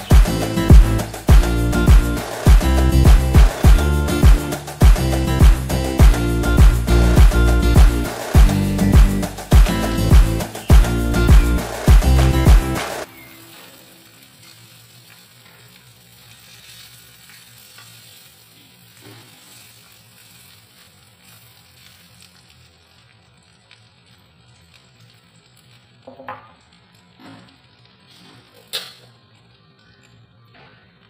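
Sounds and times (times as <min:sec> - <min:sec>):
background music: 0:00.0 - 0:13.1
meat and onions sizzling: 0:00.0 - 0:30.0.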